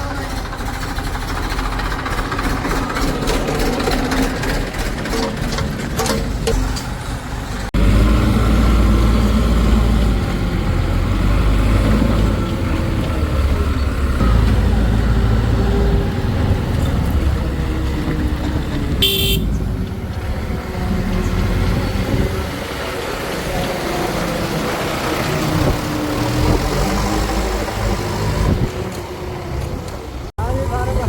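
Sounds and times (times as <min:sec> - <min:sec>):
diesel engine rumbling: 0:00.0 - 0:31.0
short horn toot: 0:19.0 - 0:19.6.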